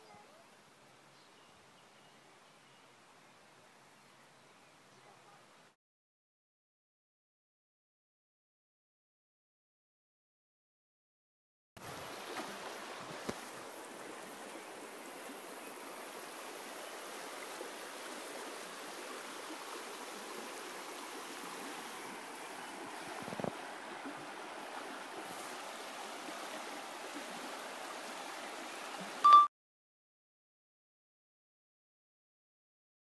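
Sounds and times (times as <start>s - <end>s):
stream running over stones: 11.8s - 29.3s
short loud pitched tone: 29.2s - 29.5s.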